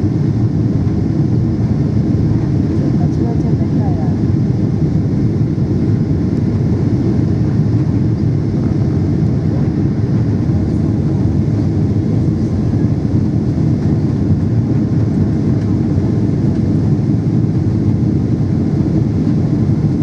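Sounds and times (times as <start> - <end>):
airflow over fuselage: 0.0 - 20.0
jet engines running: 0.0 - 20.0.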